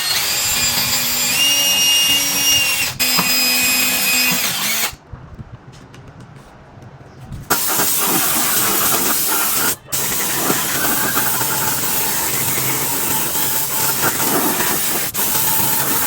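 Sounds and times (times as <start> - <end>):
compressed-air tool hissing: 7.5 - 16.0.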